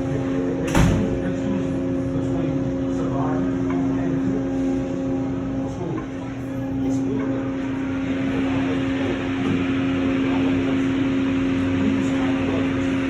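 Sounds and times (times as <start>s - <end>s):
motor hum: 0.0s - 13.0s.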